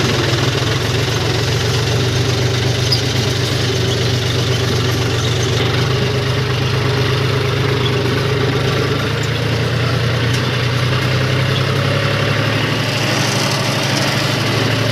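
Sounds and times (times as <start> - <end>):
tractor diesel engine running: 0.0 - 14.9.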